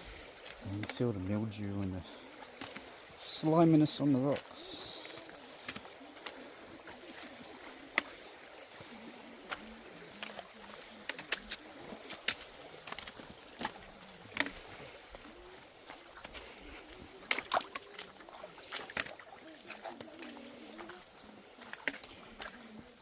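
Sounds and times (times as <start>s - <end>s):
faint outdoor hiss: 0.0s - 23.0s
footsteps on rocky trail: 2.5s - 22.8s
trekking poles tapping rocks: 5.2s - 6.4s, 7.0s - 8.2s, 9.5s - 14.8s, 16.2s - 21.0s.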